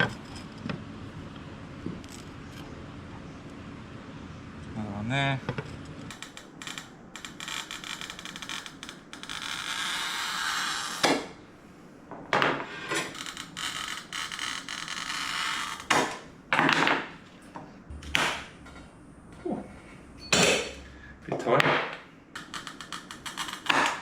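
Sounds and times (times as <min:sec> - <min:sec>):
glass scraping: 0:00.0 - 0:00.7.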